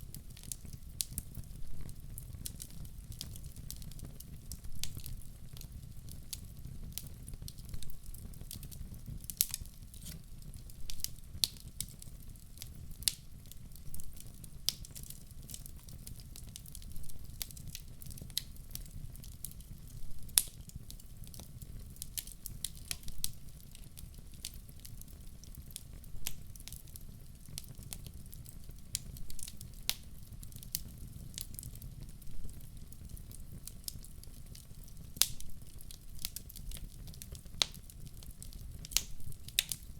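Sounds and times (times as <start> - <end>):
fire rumbling: 0.0 - 39.9
wood fire crackling and popping: 0.0 - 39.9.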